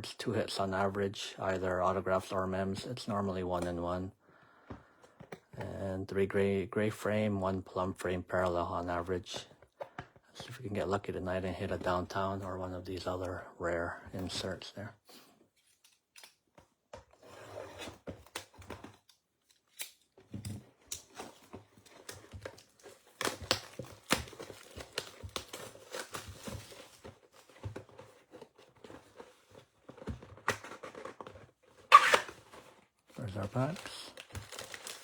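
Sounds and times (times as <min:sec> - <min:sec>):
cardboard box handling: 0:20.6 - 0:35.0
plastic wrapping crinkling: 0:20.8 - 0:35.0.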